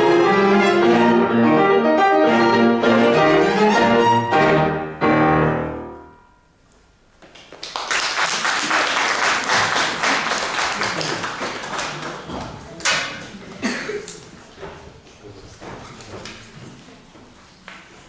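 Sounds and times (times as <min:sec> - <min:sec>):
piano and strings classical piece: 0:00.0 - 0:06.2
audience applause: 0:07.5 - 0:12.4.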